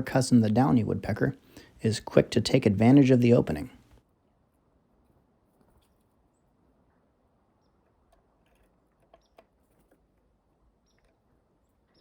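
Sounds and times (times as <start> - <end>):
faint bird chirps: 6.3 - 9.8, 10.5 - 12.0.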